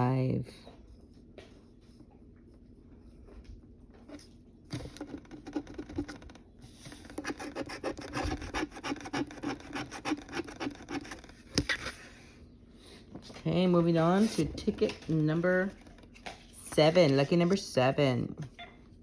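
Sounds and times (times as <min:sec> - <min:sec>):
coin scratching lottery ticket: 0:07.1 - 0:11.3.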